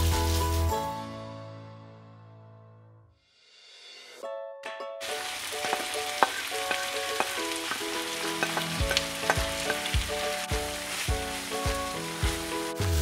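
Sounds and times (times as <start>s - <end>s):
food landing in a pan: 5.0s - 12.4s
food sizzling in a frying pan: 5.0s - 13.0s.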